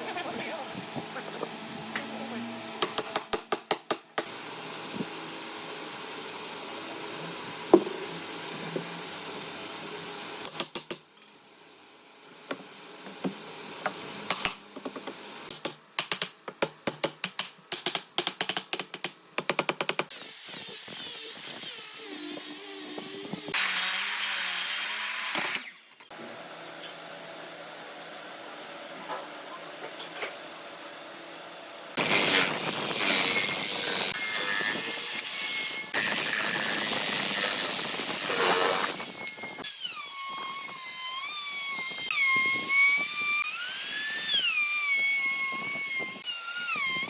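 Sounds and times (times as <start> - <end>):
power tool running: 32.0 - 47.0.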